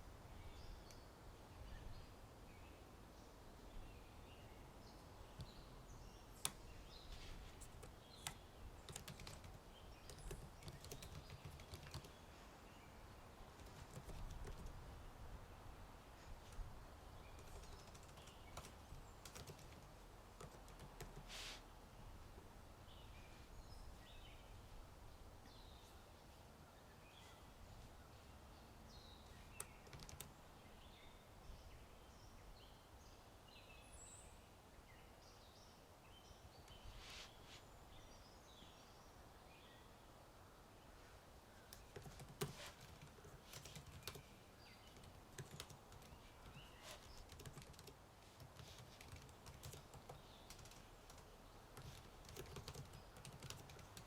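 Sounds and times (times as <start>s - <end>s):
small birds chirping: 0.0s - 40.1s, 40.8s - 54.0s
keyboard typing: 7.6s - 12.2s, 13.6s - 14.8s, 17.4s - 21.2s, 29.6s - 30.3s, 41.8s - 44.3s, 44.9s - 54.0s.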